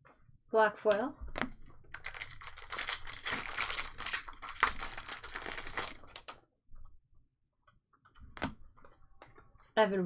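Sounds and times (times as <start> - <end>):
plastic wrapper tearing and crinkling: 1.5 - 6.4.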